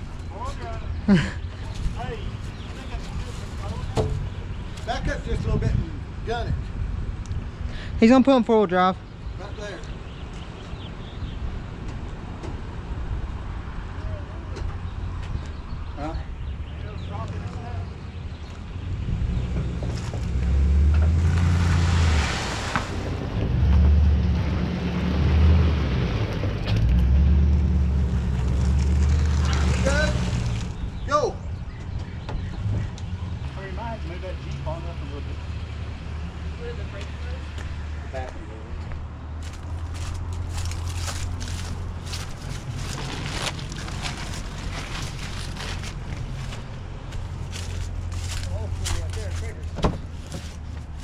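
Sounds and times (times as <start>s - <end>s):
vehicle engine droning: 16.8s - 51.0s
engine revving under load: 18.9s - 31.1s.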